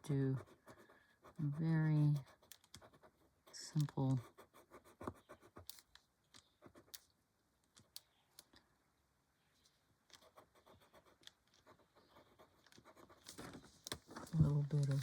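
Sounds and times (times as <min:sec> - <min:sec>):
pencil scratching on paper: 0:00.0 - 0:07.1, 0:10.1 - 0:14.2.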